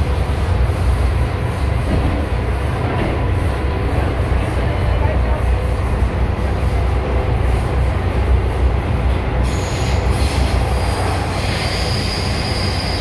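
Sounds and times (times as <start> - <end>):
train running rumble: 0.0 - 13.0
high wheel squeal: 9.4 - 13.0.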